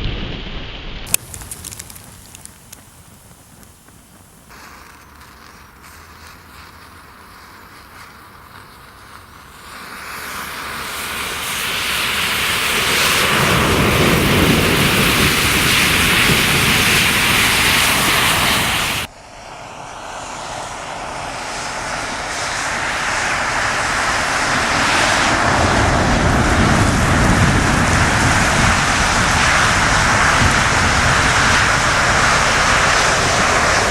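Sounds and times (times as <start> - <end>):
fire roaring: 0.0 - 33.9
matches crackling: 1.1 - 9.6.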